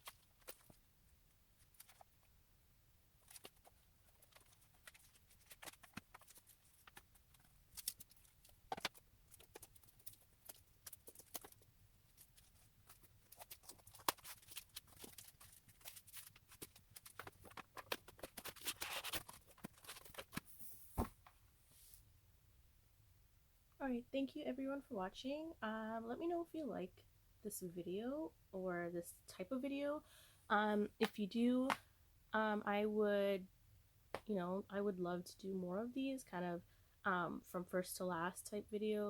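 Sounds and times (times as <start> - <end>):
paper and plastic rustling: 3.2 - 21.2
soft thud: 20.9 - 21.2.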